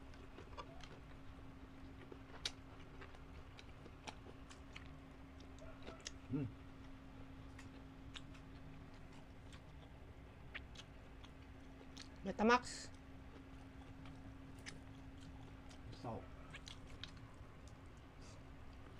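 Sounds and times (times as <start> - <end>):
wet chewing smacks and clicks: 0.0 - 12.2, 12.9 - 18.9
steady low hum: 0.0 - 18.9
person humming briefly: 6.3 - 6.5.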